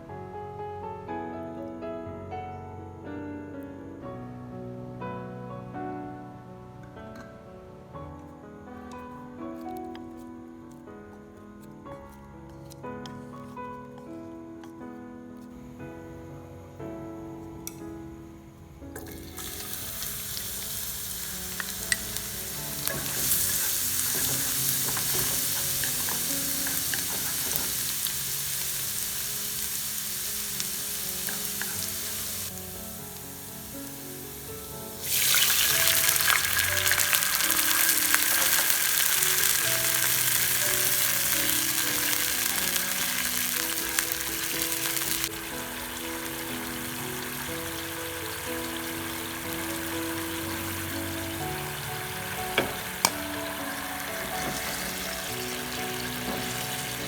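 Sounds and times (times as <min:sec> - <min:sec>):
eggs sizzling in hot oil: 0:19.0 - 0:57.0.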